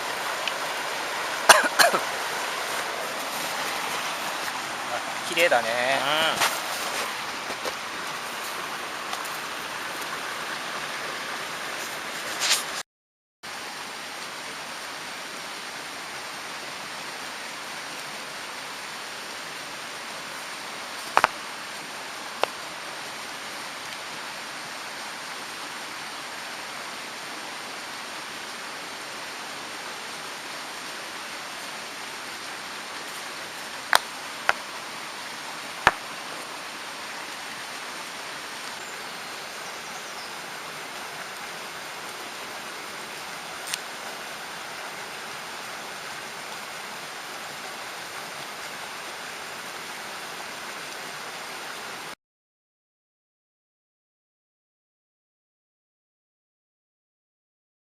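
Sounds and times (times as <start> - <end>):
mountain stream rushing: 0.0 - 12.8, 13.4 - 52.2.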